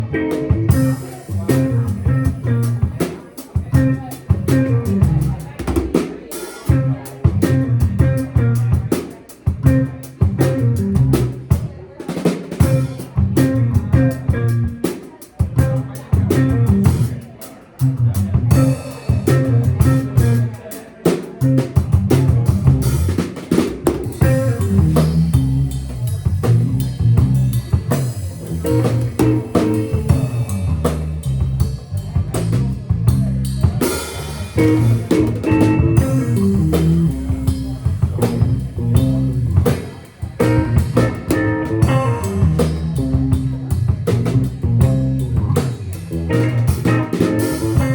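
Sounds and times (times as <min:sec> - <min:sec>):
bass line: 0:00.0 - 0:06.0, 0:06.6 - 0:11.7, 0:12.6 - 0:20.6, 0:21.4 - 0:47.9
electric guitar: 0:00.0 - 0:11.6, 0:12.6 - 0:17.2, 0:17.8 - 0:20.5, 0:21.4 - 0:47.9
drum kit playing funk groove: 0:00.0 - 0:47.9.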